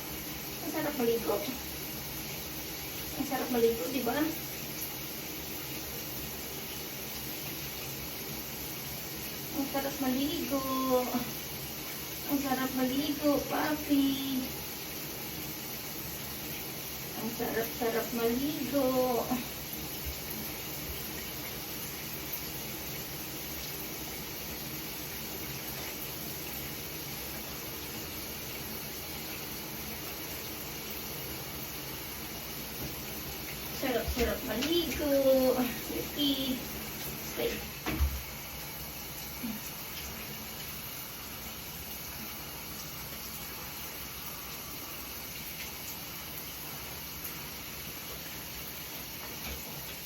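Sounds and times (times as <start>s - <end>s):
running water spraying: 0.0s - 50.0s.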